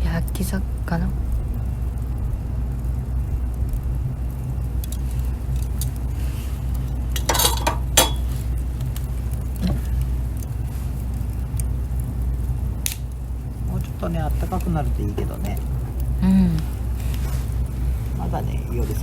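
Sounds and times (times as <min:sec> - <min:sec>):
steady low rumble: 0:00.0 - 0:19.0
light clinks: 0:06.8 - 0:08.5.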